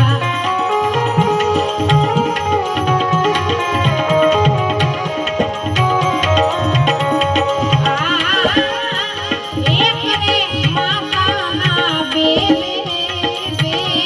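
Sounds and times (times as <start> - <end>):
ornamented melody line: 0.0 - 11.1
tabla beat: 0.0 - 14.0.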